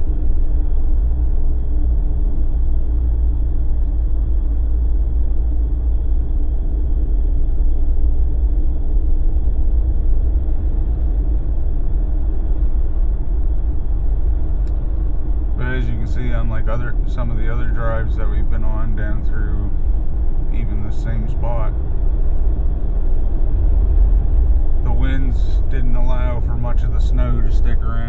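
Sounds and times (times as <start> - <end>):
car engine and tyre noise: 0.0 - 28.0
faint constant hum: 0.0 - 28.0.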